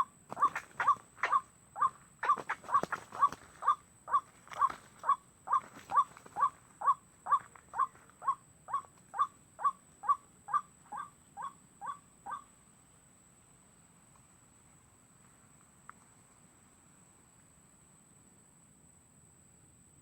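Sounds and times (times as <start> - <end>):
bird croaking calls: 0.0 - 12.5.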